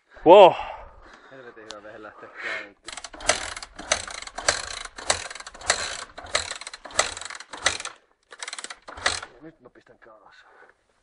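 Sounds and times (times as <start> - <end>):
mechanical ratcheting: 2.9 - 9.4.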